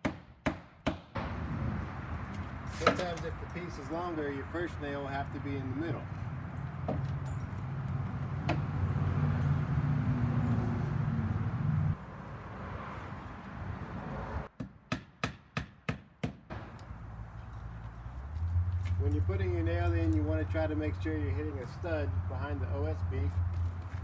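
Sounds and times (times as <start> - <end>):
hammer tapping nail into siding: 0.0 - 1.1, 14.6 - 16.6.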